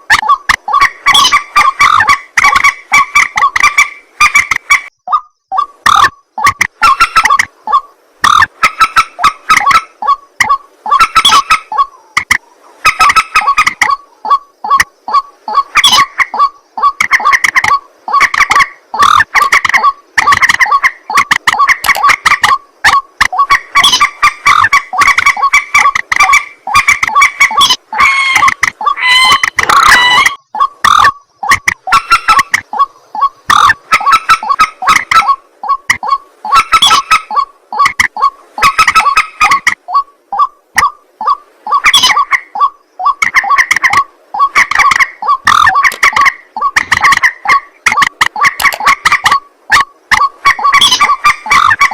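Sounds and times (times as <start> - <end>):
rail bird clucking calls: 0.0 - 51.9
sharp clicks: 16.9 - 23.4, 28.4 - 32.7, 43.2 - 49.4.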